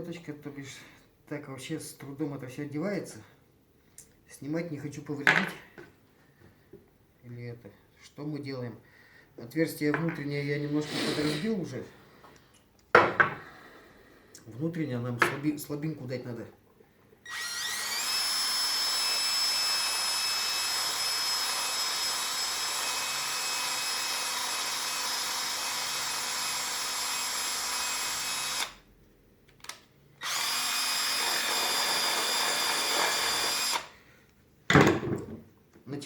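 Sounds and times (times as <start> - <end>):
power tool high whine: 17.3 - 28.8, 30.2 - 33.9.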